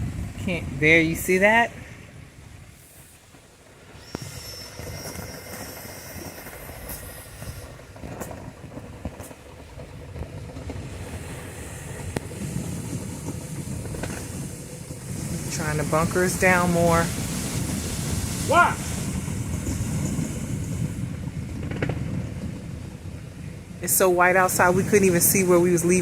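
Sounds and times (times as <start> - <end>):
blizzard wind rushing: 0.0 - 26.0.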